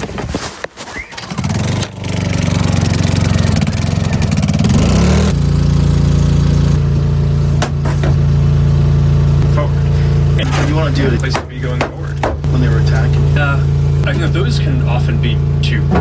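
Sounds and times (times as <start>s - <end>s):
vehicle engine starting and running: 1.0s - 16.0s
engine knocks: 1.2s - 16.0s.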